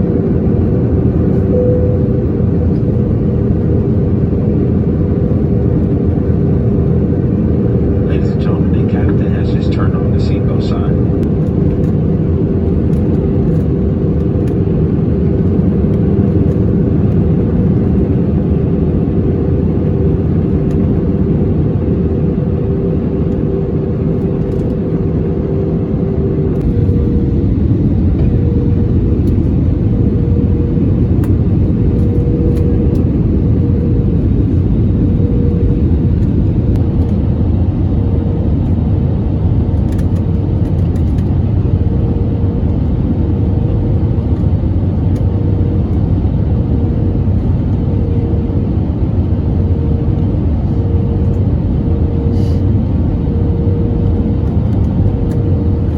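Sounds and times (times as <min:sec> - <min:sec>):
airplane engine and airflow rumble: 0:00.0 - 0:55.9
thin steady hum: 0:01.3 - 0:04.7.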